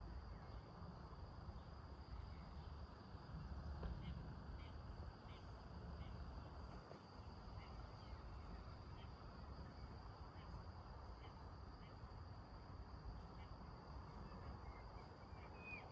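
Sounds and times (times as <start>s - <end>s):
insects trilling: 7.2s - 15.9s.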